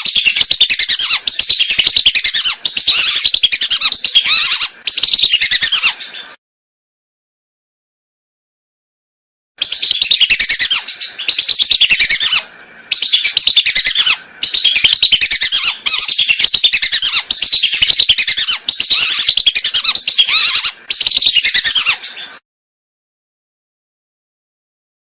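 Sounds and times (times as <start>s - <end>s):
whistling duck calling: 0.0s - 5.9s, 9.6s - 22.0s.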